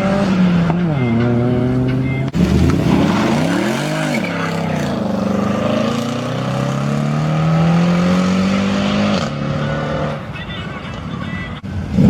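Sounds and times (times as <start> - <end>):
car engine revving: 0.0 - 10.3, 11.7 - 12.0.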